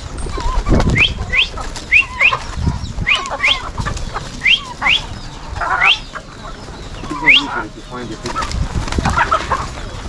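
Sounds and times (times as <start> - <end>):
high rising bird chirps: 0.2 - 8.0
low wavering bird call: 0.4 - 3.7, 4.4 - 6.3.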